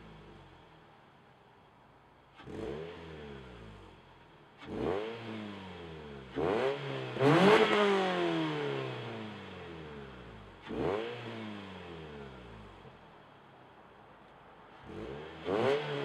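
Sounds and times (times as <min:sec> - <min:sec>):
car engine revving: 0:02.3 - 0:04.0, 0:04.6 - 0:12.8, 0:14.8 - 0:16.0.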